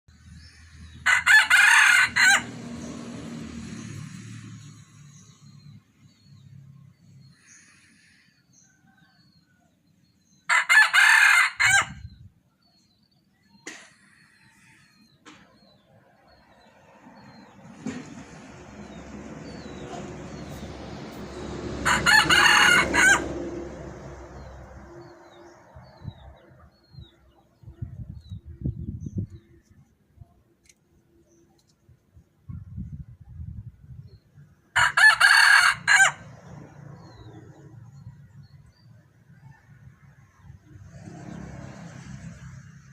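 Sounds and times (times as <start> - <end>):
rooster crowing: 1.0 - 2.8, 10.5 - 12.0, 21.8 - 23.6, 34.8 - 36.3.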